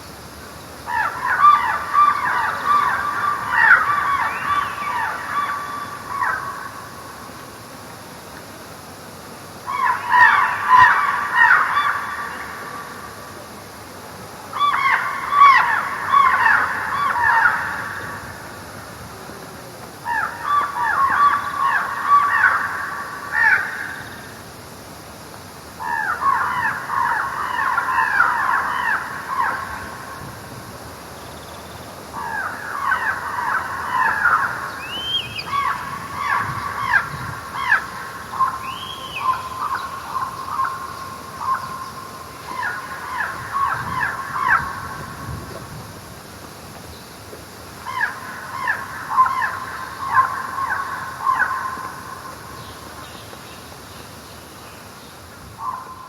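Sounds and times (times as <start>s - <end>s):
birds chattering calls: 0.0s - 7.4s, 9.5s - 13.7s, 14.3s - 24.4s, 25.8s - 45.8s, 46.5s - 56.0s
high arched bird calls: 0.8s - 7.0s, 31.2s - 45.2s, 47.8s - 56.0s.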